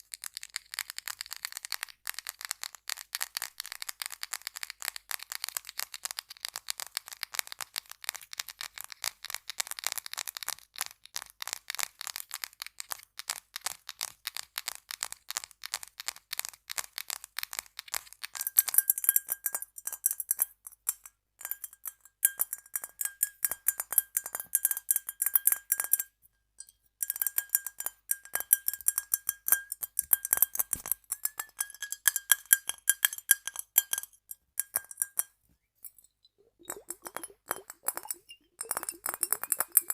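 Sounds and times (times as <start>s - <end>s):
tapping on ringing glass: 26.6s - 39.9s
rapid dry tapping clicks: 36.6s - 39.9s.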